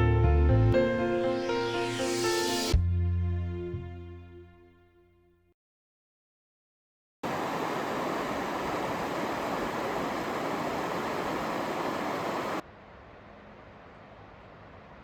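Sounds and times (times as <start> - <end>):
river water rushing: 7.2 - 12.6.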